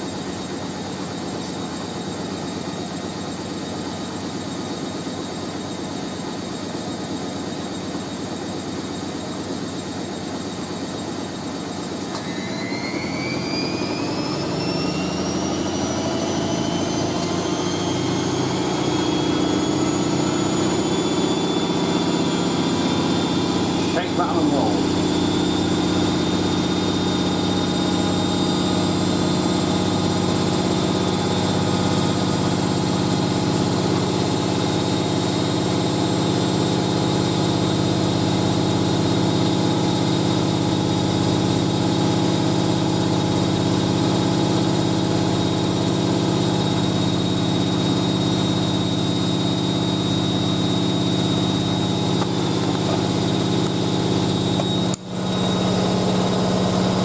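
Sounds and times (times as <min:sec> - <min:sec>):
washing machine drum spinning: 0:12.0 - 0:24.1, 0:24.8 - 0:57.0.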